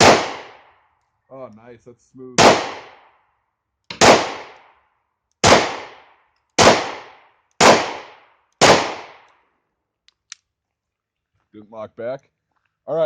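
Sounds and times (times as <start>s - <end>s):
pistol shots with echo: 0.0s - 0.7s, 2.4s - 3.1s, 3.9s - 4.8s, 5.4s - 9.3s.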